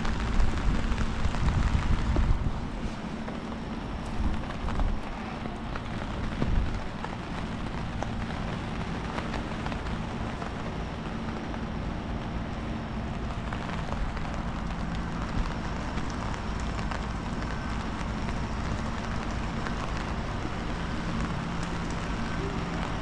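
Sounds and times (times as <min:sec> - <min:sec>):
rain falling on a street: 0:00.0 - 0:23.0
wind rumbling on microphone: 0:00.0 - 0:23.0.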